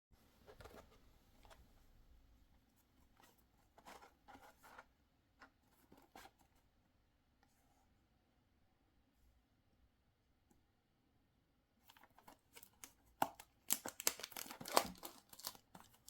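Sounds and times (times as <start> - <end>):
packaging rustling: 12.2 - 16.0.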